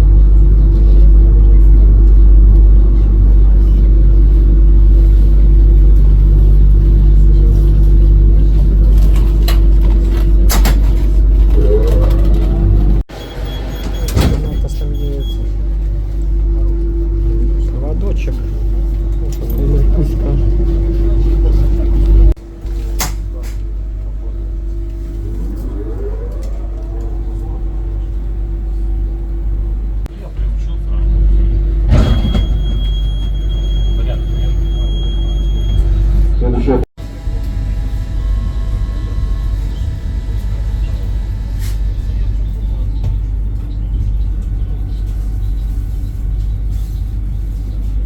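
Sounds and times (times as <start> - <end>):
electric train rumbling: 0.0 - 48.0
traction motor whine: 23.6 - 30.1, 31.1 - 42.8
short rising tone: 24.6 - 30.1.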